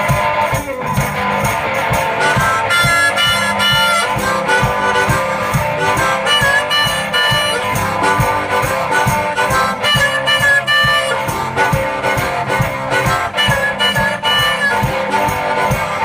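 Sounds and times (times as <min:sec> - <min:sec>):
foot-played percussion beat: 0:00.0 - 0:16.0
guitar: 0:00.0 - 0:16.0
harmonica lead: 0:00.0 - 0:16.0.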